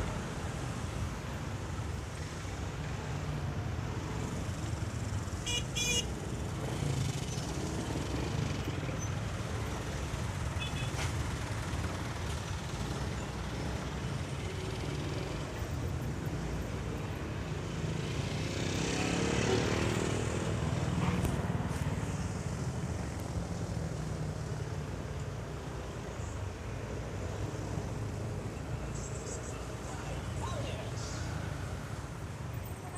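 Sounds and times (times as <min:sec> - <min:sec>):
motorcycle engine and road noise: 0:00.0 - 0:32.9
surrounding traffic: 0:00.0 - 0:32.9
vehicle passing: 0:16.3 - 0:24.6.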